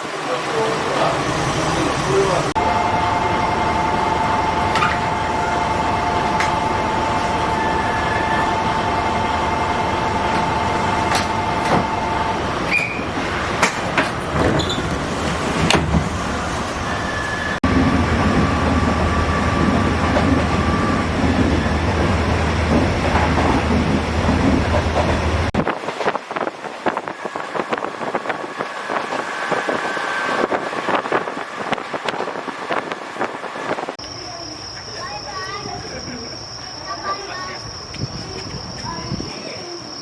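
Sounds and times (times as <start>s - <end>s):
train rail running noise: 0.0s - 40.0s.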